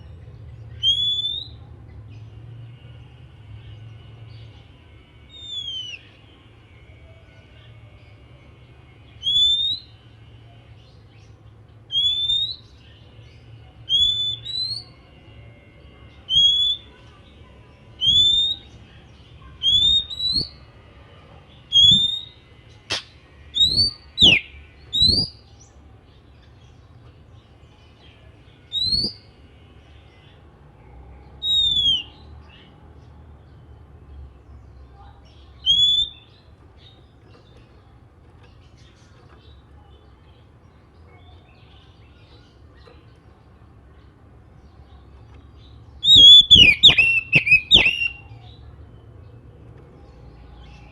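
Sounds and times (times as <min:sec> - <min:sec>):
bird whistled call: 0:00.8 - 0:01.6, 0:05.3 - 0:06.1, 0:09.2 - 0:09.9, 0:11.9 - 0:12.7, 0:13.9 - 0:14.9, 0:16.3 - 0:16.9, 0:18.0 - 0:18.7, 0:19.6 - 0:20.6, 0:21.7 - 0:25.4, 0:28.7 - 0:29.3, 0:31.4 - 0:32.2, 0:35.6 - 0:36.3, 0:46.0 - 0:48.3.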